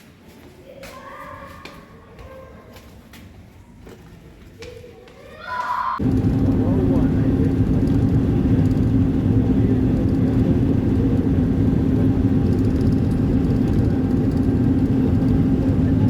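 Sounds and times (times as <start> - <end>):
road noise: 6.0 - 16.0
steady hum: 6.0 - 16.0
vehicle engine rumble: 6.0 - 16.0.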